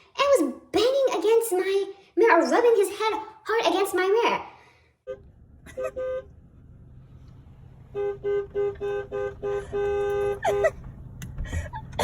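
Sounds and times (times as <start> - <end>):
car horn beeping: 5.0 - 12.0.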